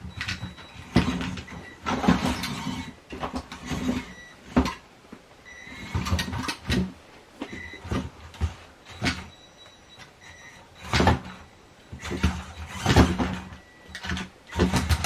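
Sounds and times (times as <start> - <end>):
toy truck motor whirring: 12.0 - 15.0.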